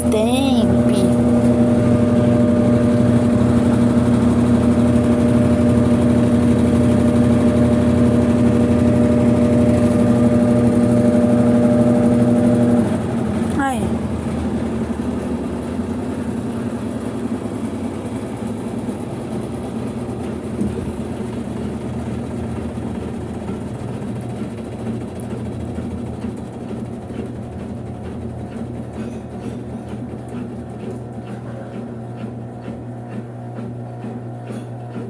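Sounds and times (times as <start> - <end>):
washing machine running: 0.0 - 35.0.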